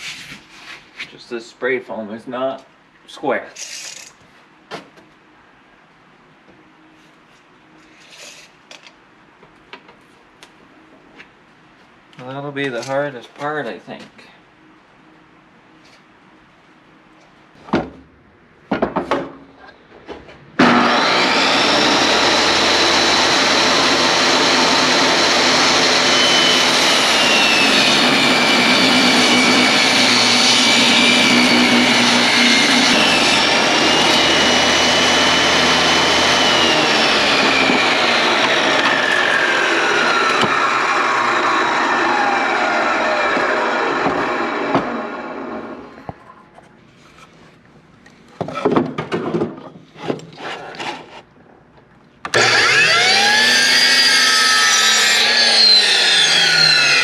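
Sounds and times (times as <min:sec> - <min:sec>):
electric saw cutting wood: 0:20.6 - 0:45.9, 0:52.3 - 0:57.0.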